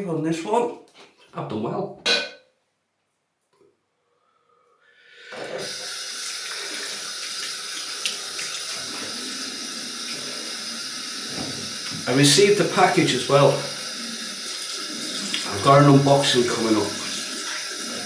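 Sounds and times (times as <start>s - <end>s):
water tap running into sink: 5.3s - 18.0s.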